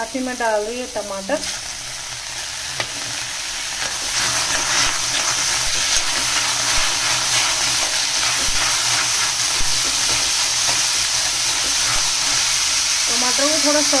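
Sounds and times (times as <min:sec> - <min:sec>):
vegetables sizzling in a pan: 0:00.0 - 0:14.0
metal spoon scraping a pan: 0:02.8 - 0:12.7.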